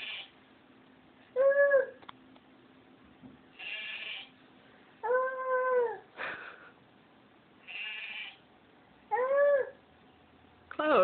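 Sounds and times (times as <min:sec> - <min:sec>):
cat meowing: 0:03.6 - 0:04.3, 0:07.7 - 0:08.4.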